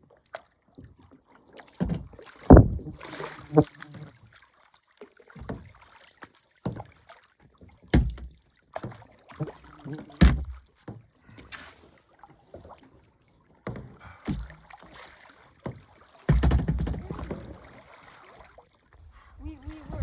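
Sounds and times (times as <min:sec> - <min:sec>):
kayak paddle splashing: 0:00.0 - 0:20.0.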